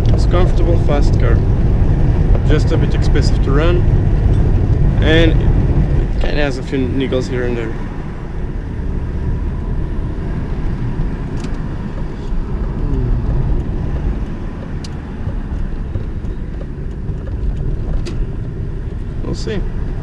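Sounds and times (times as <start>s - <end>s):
car engine and tyres rumbling: 0.0s - 20.0s
light ticks and rattles: 10.9s - 20.0s.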